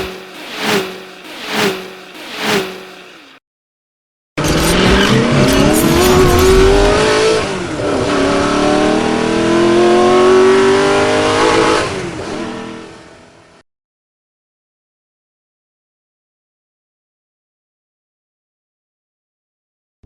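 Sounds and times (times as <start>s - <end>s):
car engine accelerating hard: 0.0s - 3.4s, 4.4s - 13.6s.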